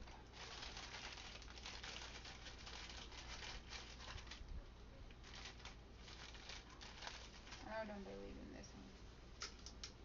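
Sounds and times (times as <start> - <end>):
leaves ticking into jars: 0.0 - 4.5, 5.1 - 8.0
dry leaves rustling and crinkling: 0.4 - 4.4, 5.2 - 7.8.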